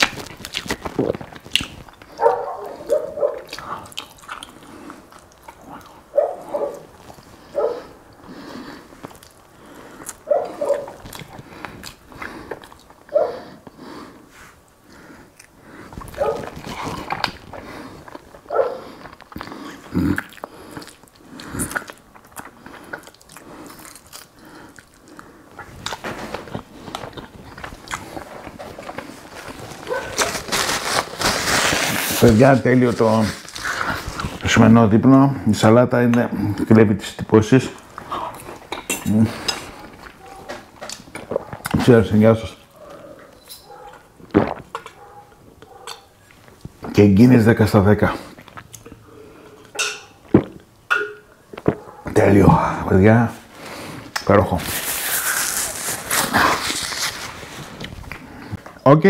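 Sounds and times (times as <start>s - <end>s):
mouth smacks: 0.0s - 8.3s, 8.9s - 13.8s, 14.9s - 30.7s, 37.8s - 41.9s, 42.7s - 46.9s, 48.2s - 52.2s
man chewing fish: 0.0s - 31.3s, 37.8s - 41.8s, 42.6s - 46.8s, 48.2s - 50.7s, 51.3s - 52.1s.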